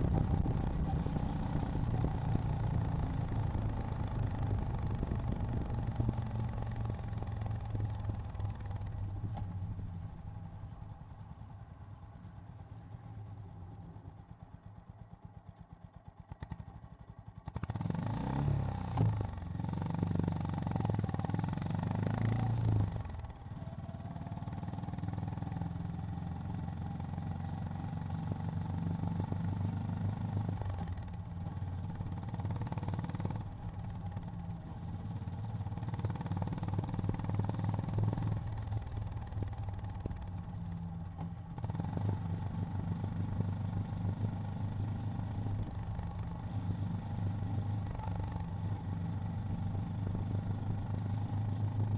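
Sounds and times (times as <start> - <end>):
motorcycle accelerating: 0.0 - 9.0, 17.5 - 51.9
motorcycle engine idling: 0.0 - 17.7, 23.0 - 41.6.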